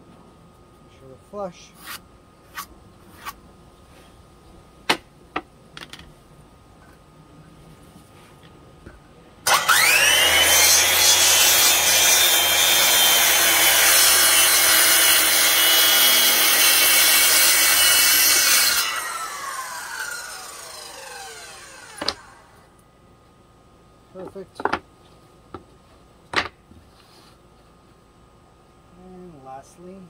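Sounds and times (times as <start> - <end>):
circular saw cutting wood: 9.5 - 22.6.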